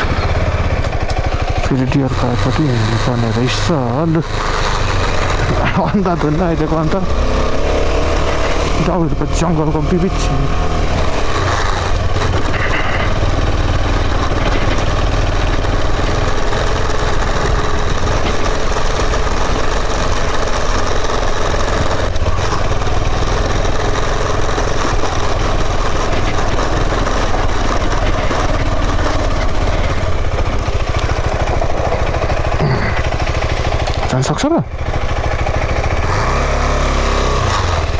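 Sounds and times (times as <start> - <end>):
motorcycle engine rumbling: 0.0 - 37.9
road and air noise: 0.0 - 37.9.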